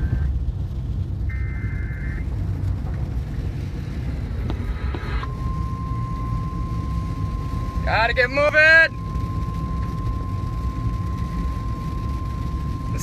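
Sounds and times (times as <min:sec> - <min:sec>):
road rumble: 0:00.0 - 0:13.0
radio data tones: 0:01.3 - 0:02.3, 0:04.4 - 0:13.0
steady alarm tone: 0:04.7 - 0:13.0.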